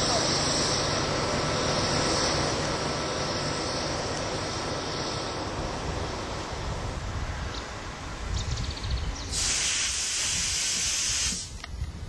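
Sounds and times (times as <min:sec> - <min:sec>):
train wheels rumbling on rails: 0:00.0 - 0:12.0
loud hiss: 0:09.2 - 0:11.7.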